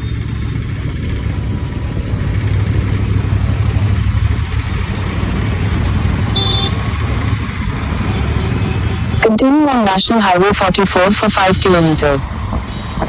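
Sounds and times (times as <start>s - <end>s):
motorcycle engine and road noise: 0.0s - 9.2s, 11.5s - 13.0s
high-pitched tone: 9.2s - 12.3s.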